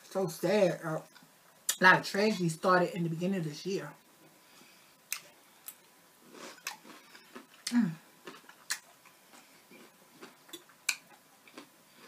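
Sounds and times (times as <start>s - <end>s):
chewing food: 5.1s - 12.0s
person humming: 7.7s - 8.0s
wet lip clicks: 10.5s - 11.2s.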